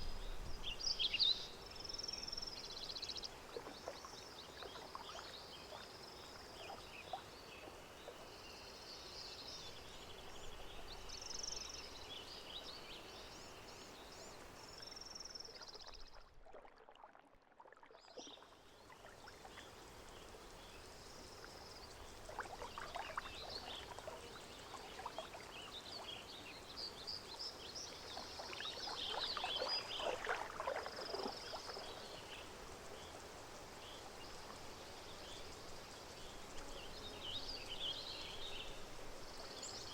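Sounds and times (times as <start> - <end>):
small birds chirping: 0.0 - 16.2, 18.1 - 39.9
water lapping and splashing: 3.4 - 7.3, 14.5 - 34.7.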